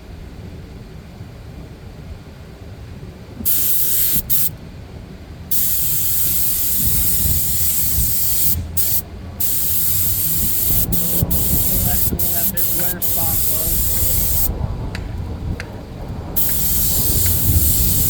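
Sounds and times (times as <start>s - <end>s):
spray gun hissing: 3.4s - 4.6s, 5.5s - 14.5s, 16.4s - 18.0s.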